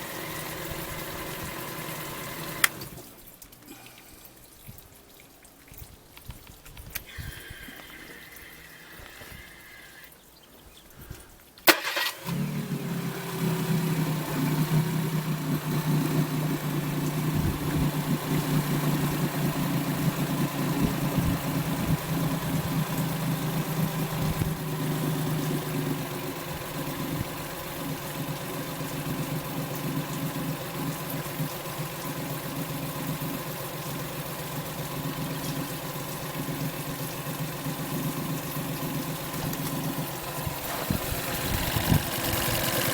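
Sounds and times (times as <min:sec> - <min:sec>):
outboard motor running: 0:00.0 - 0:03.1, 0:11.7 - 0:42.9.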